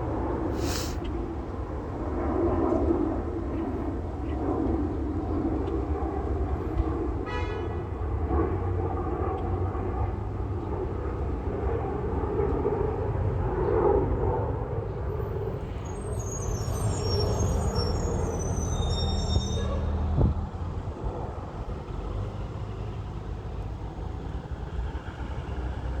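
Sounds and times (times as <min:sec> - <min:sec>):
jet engines rumbling: 0:00.0 - 0:07.2, 0:20.2 - 0:26.0.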